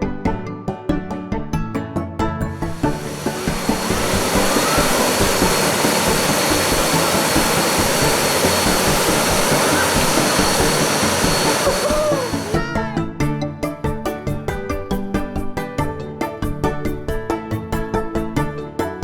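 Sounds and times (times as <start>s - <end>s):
thin high tone: 2.6s - 12.8s.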